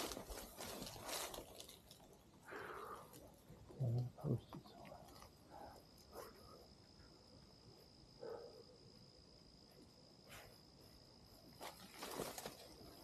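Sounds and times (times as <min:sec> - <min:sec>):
soft rustles: 0:00.0 - 0:02.2, 0:10.2 - 0:13.0
insect trill: 0:00.0 - 0:13.0.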